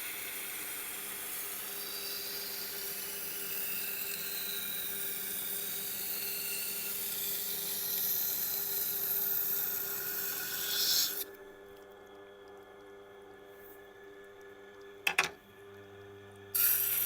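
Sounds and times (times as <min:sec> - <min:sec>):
knife grinding on sharpener wheel: 0:01.8 - 0:11.3, 0:16.6 - 0:17.0.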